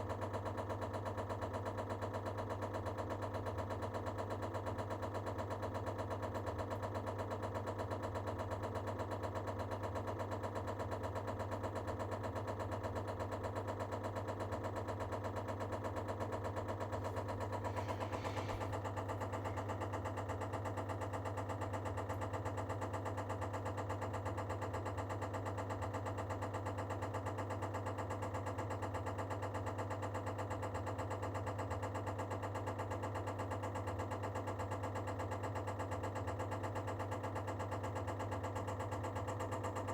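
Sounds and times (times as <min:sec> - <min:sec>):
boiler humming: 0:15.5 - 0:20.1.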